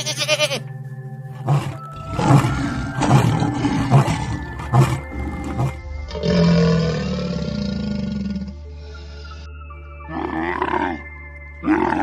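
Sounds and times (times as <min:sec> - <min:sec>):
goat bleating: 0:00.0 - 0:00.7
background music: 0:00.0 - 0:12.0.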